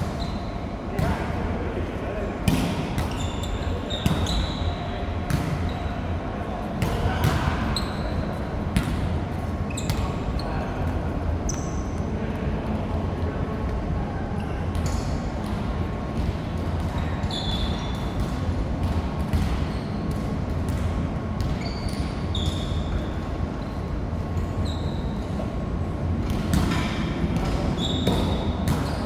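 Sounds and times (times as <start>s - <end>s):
sneakers squeaking on court floor: 0.1s - 0.7s, 2.6s - 5.9s, 7.2s - 9.0s, 9.6s - 10.6s, 11.5s - 11.9s, 21.4s - 23.2s, 24.4s - 25.4s, 27.6s - 29.0s.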